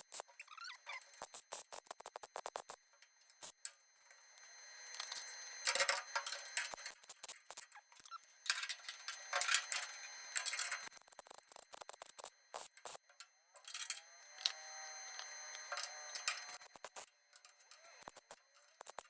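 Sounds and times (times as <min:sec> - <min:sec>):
welder crackling: 0:04.3 - 0:19.0.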